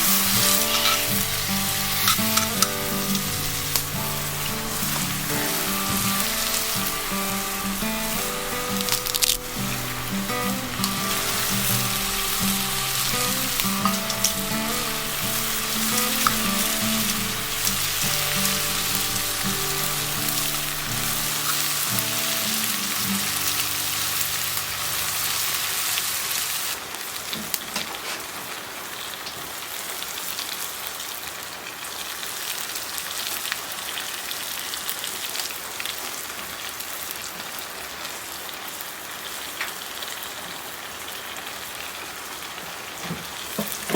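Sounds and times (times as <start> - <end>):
background music: 0.0 - 26.1
food sizzling over fire: 0.0 - 43.9.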